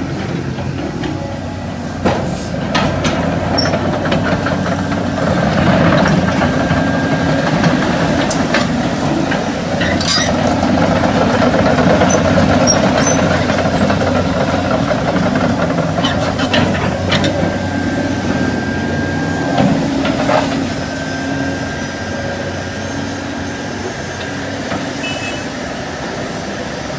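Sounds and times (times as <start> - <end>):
heavy diesel engine running: 0.0 - 26.9
metallic clanks and knocks: 5.6 - 11.0.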